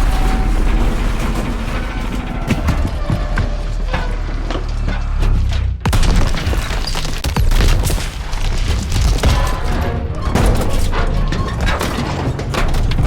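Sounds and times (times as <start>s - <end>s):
train rumbling past: 0.0s - 5.2s
train wheels banging and clattering: 0.0s - 5.8s.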